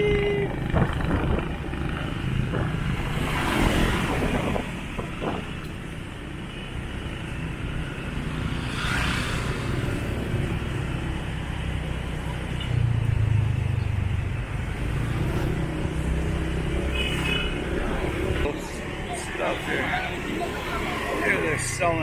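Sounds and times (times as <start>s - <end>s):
motorbike engine running: 0.0s - 3.2s
traffic noise: 0.0s - 22.0s.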